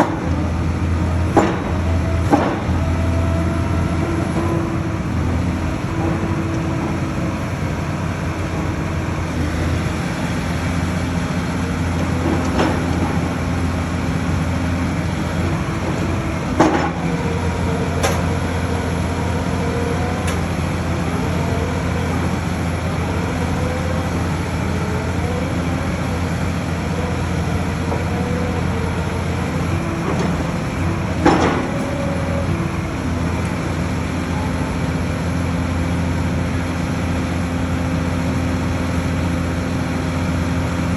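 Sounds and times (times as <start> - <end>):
diesel engine running: 0.0 - 40.9
sharp metallic knocks: 1.3 - 2.9.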